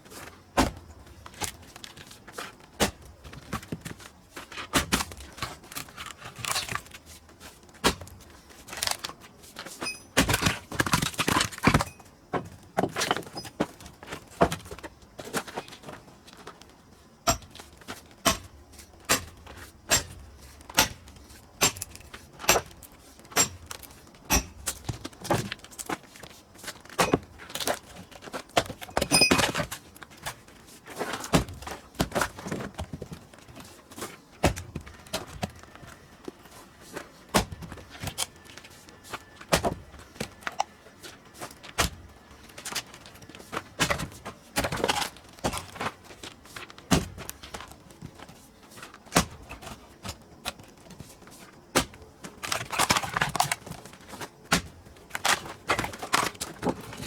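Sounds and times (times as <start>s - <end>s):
wood splitting knocks and thuds: 0.6s - 2.0s, 2.8s - 7.0s, 7.8s - 9.1s, 9.7s - 16.0s, 17.2s - 26.0s, 26.8s - 30.4s, 31.0s - 35.7s, 37.3s - 38.2s, 39.5s - 40.6s, 41.7s - 48.2s, 49.1s - 50.2s, 51.7s - 57.0s.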